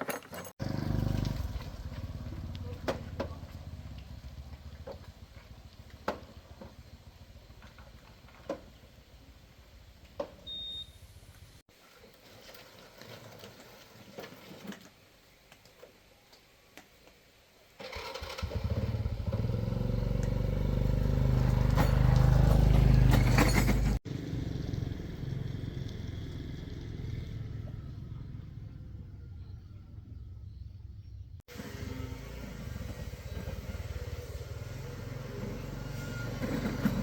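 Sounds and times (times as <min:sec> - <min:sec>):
engine running: 0:00.6 - 0:10.2, 0:18.0 - 0:29.1, 0:31.5 - 0:37.0.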